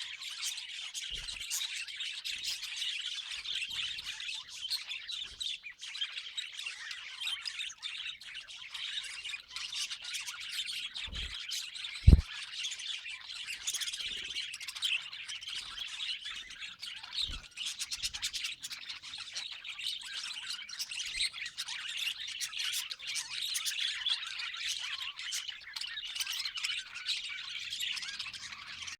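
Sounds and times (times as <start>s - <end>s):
budgerigars chattering: 6.0s - 28.9s.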